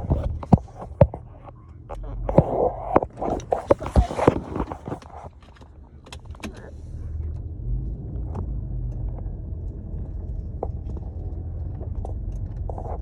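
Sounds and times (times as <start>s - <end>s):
car driving rumble from inside: 0.0s - 13.0s.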